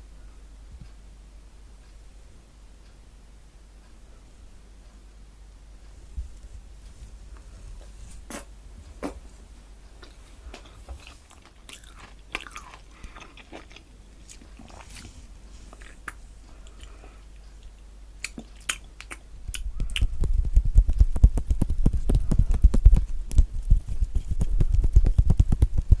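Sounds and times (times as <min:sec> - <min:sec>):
mouth clicks: 0:08.3 - 0:09.2, 0:17.6 - 0:20.5
wet chewing: 0:10.0 - 0:15.1, 0:15.7 - 0:20.4
low thumps: 0:19.4 - 0:26.0.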